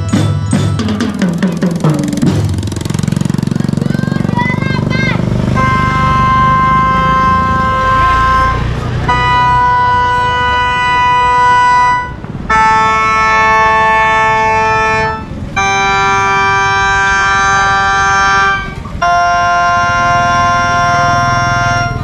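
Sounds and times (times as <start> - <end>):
wind instruments playing long notes: 2.8 - 22.0.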